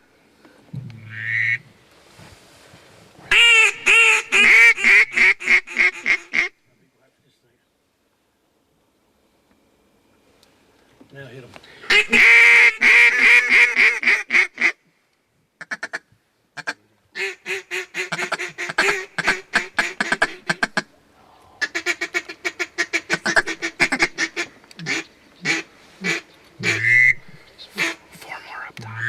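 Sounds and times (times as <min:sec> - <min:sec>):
duck call quacks and chatter: 0:03.3 - 0:06.5, 0:11.9 - 0:14.8, 0:16.6 - 0:20.9, 0:21.6 - 0:28.0.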